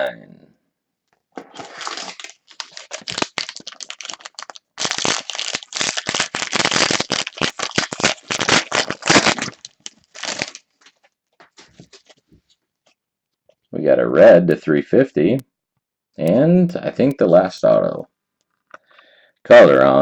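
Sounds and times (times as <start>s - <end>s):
foil wrapper crinkling: 1.4s - 12.2s.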